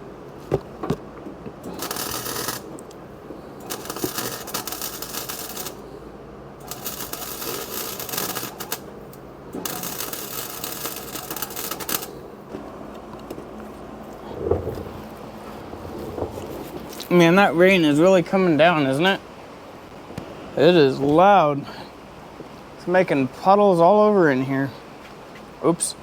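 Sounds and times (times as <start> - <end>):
welder arc crackling: 1.6 - 5.8, 6.6 - 12.3, 13.1 - 19.2.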